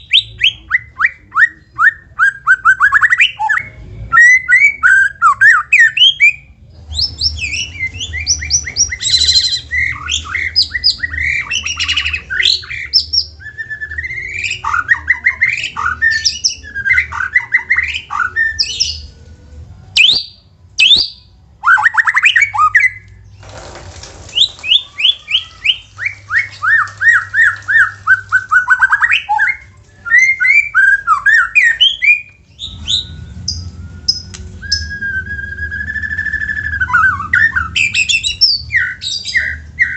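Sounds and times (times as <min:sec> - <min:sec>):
bird singing whistles and trills: 0:00.0 - 0:19.2, 0:20.0 - 0:23.3, 0:24.3 - 0:39.9
harsh rasping bird call: 0:24.3 - 0:29.6.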